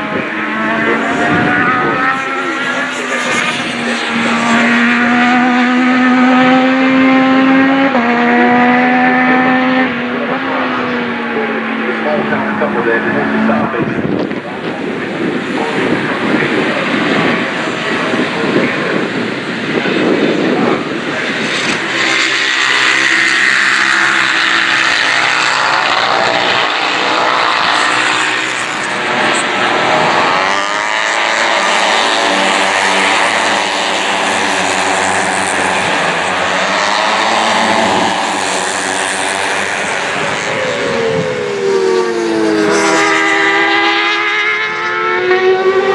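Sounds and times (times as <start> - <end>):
racing motorcycles passing at high revs: 0.0 - 45.9.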